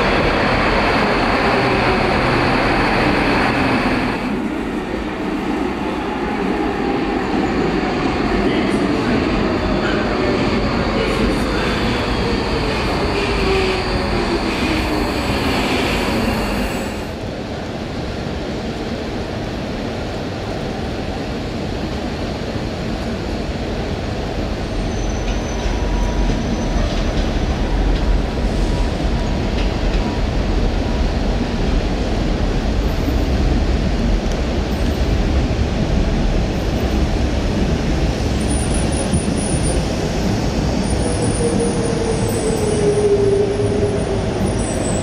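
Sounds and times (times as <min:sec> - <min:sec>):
train rumble on track: 0:00.0 - 0:45.0.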